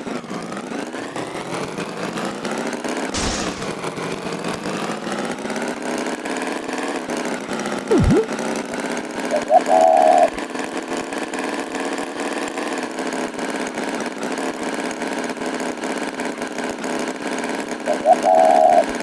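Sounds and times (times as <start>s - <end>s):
short whoosh: 3.2s - 4.0s.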